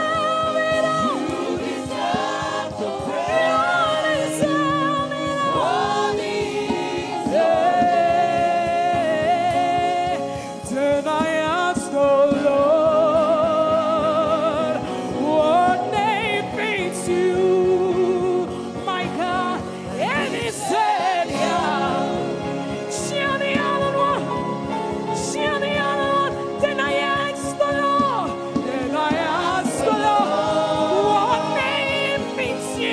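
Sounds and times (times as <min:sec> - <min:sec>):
backing voices singing: 0:00.0 - 0:11.1, 0:19.5 - 0:24.4, 0:25.3 - 0:32.9
instrumental accompaniment: 0:00.0 - 0:32.9
lead voice singing: 0:00.0 - 0:32.9.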